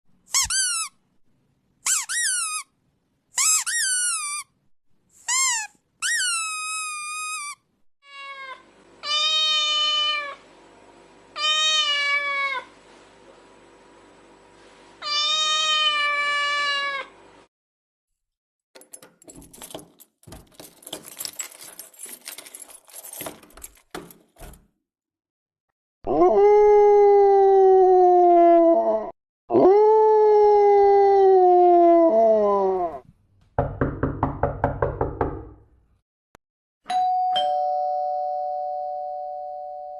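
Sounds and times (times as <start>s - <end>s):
two-tone doorbell chime: 36.9s - 39.9s.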